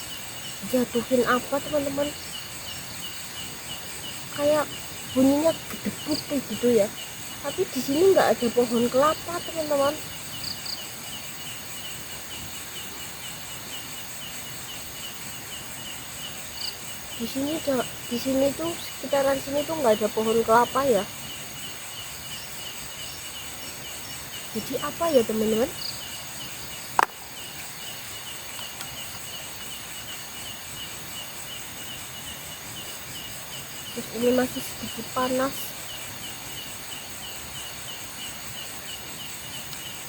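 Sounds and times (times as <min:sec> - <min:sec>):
insects steady hiss: 0:00.0 - 0:40.0.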